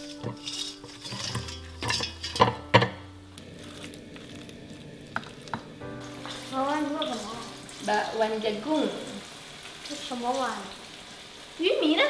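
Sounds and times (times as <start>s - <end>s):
metal utensils clinking on a plate: 0.0s - 3.0s
spoon stirring batter in metal bowl: 0.0s - 3.0s
oil sizzling: 0.0s - 12.0s.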